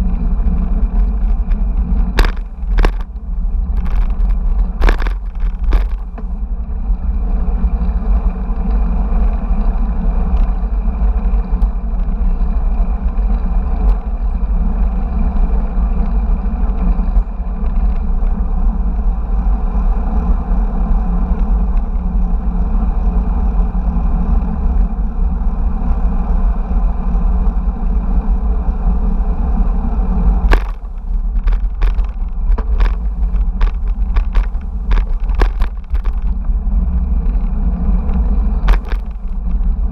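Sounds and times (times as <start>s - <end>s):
wind and road noise: 0.0s - 39.9s
sharp rattles or knocks: 0.9s - 6.3s, 30.4s - 36.4s, 38.2s - 39.4s.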